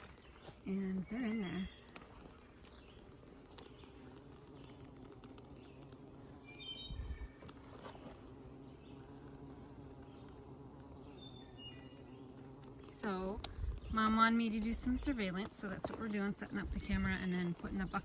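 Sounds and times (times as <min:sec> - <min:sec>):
bees humming: 0:00.0 - 0:18.0
bird chirps: 0:05.5 - 0:08.1.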